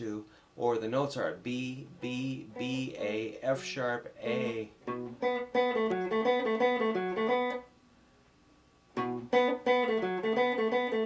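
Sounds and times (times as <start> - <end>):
guitar picking single-note riff: 1.5 - 7.7, 9.0 - 11.0.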